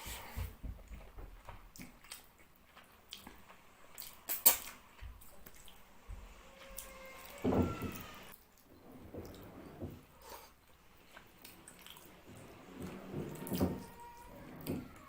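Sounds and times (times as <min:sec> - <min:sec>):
chewing with lip smacks: 0:01.7 - 0:05.8, 0:10.7 - 0:12.1.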